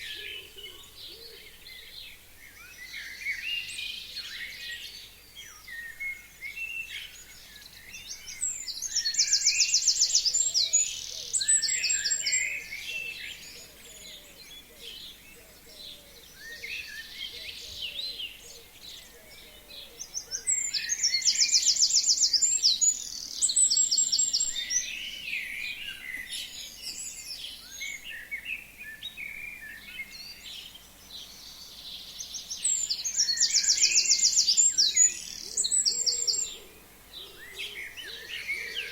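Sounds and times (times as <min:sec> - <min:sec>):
bird singing loud high song: 0:00.0 - 0:38.9
birds chirping softly: 0:00.0 - 0:38.9.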